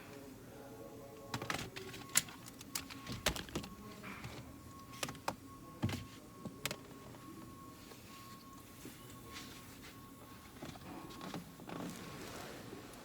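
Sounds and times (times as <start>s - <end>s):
bolts and nuts being handled: 1.3s - 6.9s.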